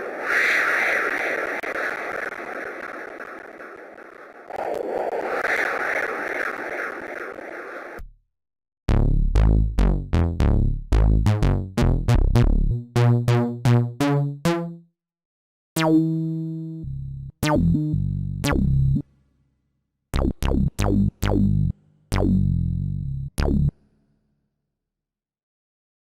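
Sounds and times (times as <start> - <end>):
synthesizer plucky bass notes: 8.9 - 14.9, 15.8 - 19.0, 20.2 - 23.8.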